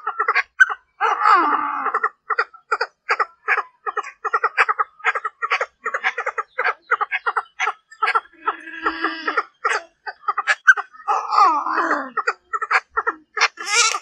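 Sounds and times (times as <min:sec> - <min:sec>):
francolin clucking call: 0:12.1 - 0:14.0.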